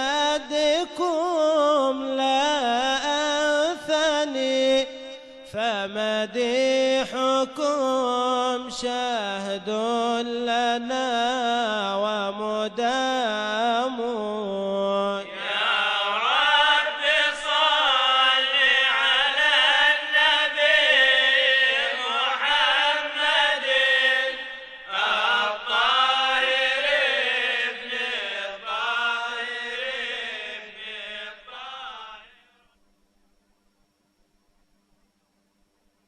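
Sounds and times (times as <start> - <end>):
person chanting melismatic praise: 15.3 - 32.3.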